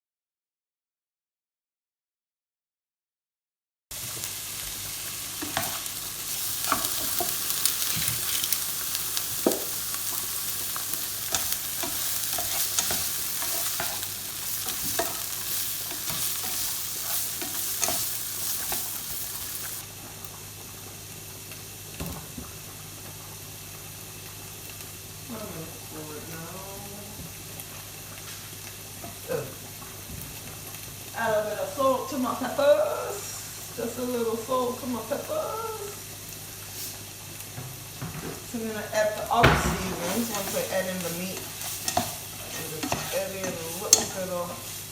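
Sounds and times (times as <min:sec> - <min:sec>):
vegetables sizzling in oil: 0:03.9 - 0:44.9
utensil scraping a pan: 0:39.8 - 0:44.4.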